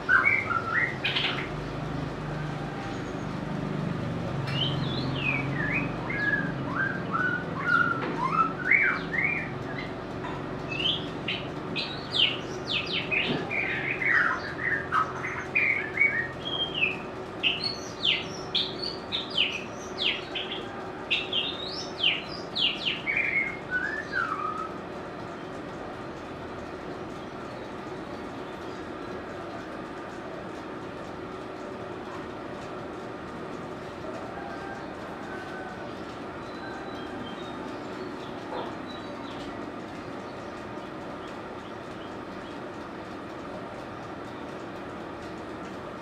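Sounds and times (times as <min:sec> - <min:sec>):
bird singing whistled phrases: 0:04.5 - 0:09.5, 0:22.0 - 0:24.7.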